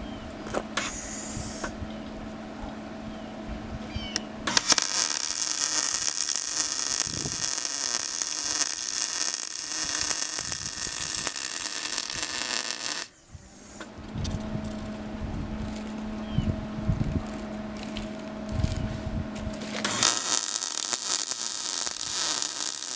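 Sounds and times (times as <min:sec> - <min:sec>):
angle grinder whining: 0:04.5 - 0:13.1, 0:19.7 - 0:22.9.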